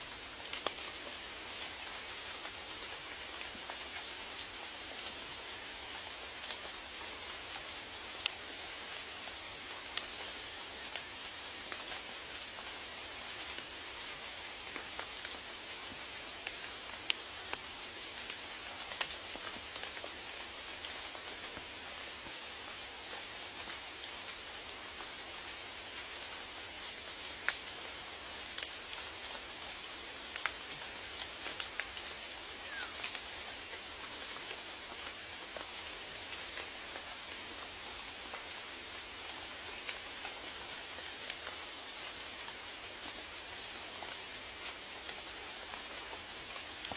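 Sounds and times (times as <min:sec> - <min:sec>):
raindrops ticking on a surface: 0:00.0 - 0:46.9
steady rain hissing: 0:00.0 - 0:46.9.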